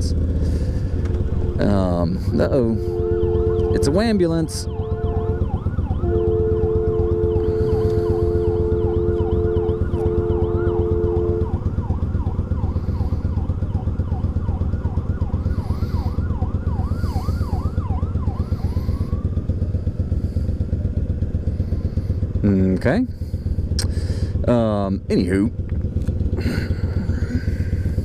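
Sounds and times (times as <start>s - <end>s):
two-tone horn blaring: 0.0s - 13.4s
motorcycle engine running: 0.0s - 28.0s
ambulance siren yelping and wailing: 0.9s - 21.1s.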